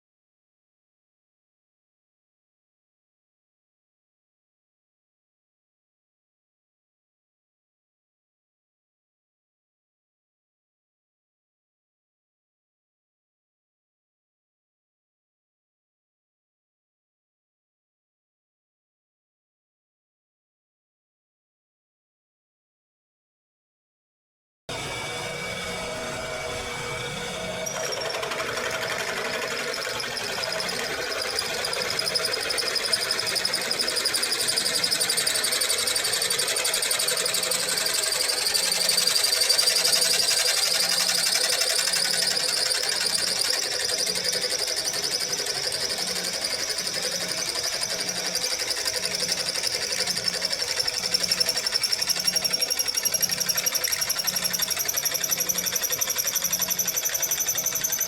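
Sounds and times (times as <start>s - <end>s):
high-speed motor whine: 24.7s - 58.0s.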